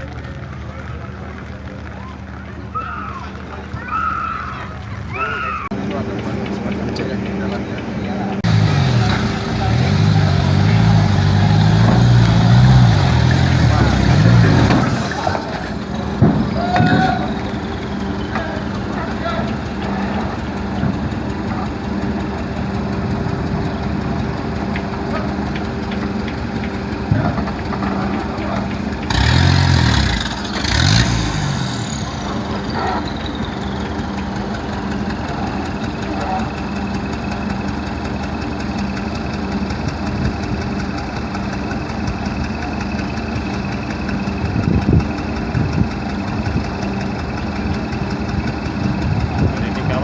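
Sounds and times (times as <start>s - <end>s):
engine idling: 0.0s - 50.0s.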